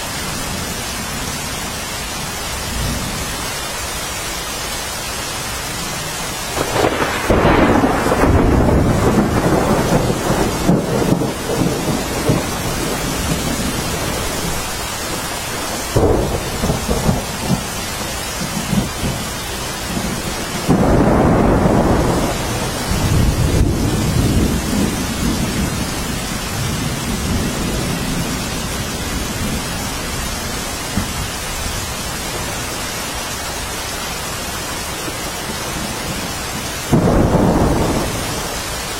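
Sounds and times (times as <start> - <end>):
steady rain: 0.0 - 38.9
thunder rolling: 6.5 - 29.8, 35.8 - 38.8.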